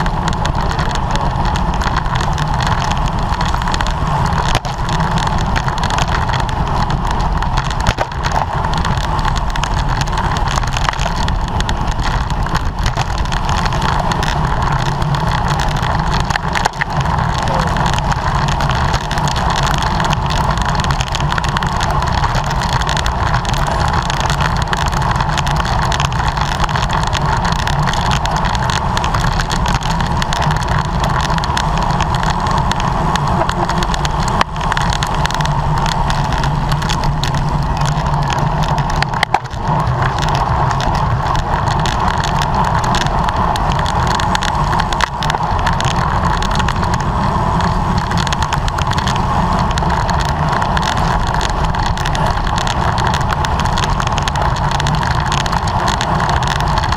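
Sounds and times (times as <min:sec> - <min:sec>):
constant hum: 0:00.0 - 0:56.9
low rumble: 0:00.0 - 0:56.9
road noise: 0:00.0 - 0:56.9
wind rush: 0:00.0 - 0:56.9.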